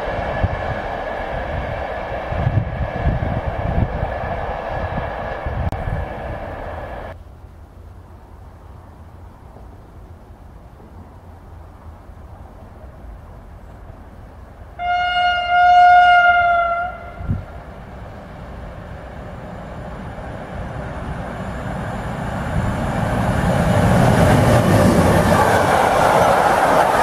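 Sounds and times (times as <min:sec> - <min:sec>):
train rumble: 0:00.0 - 0:27.0
train horn blast: 0:14.8 - 0:17.5.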